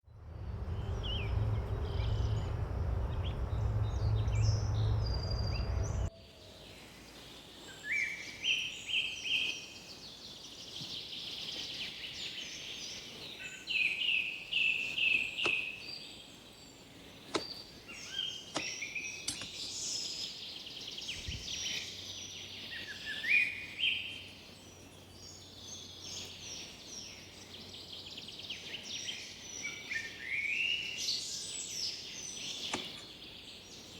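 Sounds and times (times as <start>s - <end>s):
low rumbling noise: 0.0s - 6.8s
songbirds singing: 0.1s - 33.9s.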